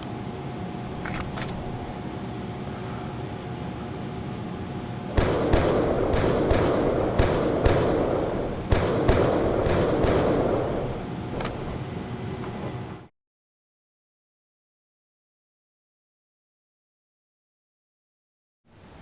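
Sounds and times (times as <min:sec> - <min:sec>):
steady hum: 0:00.0 - 0:13.1
sharp echoing bangs: 0:05.2 - 0:11.8.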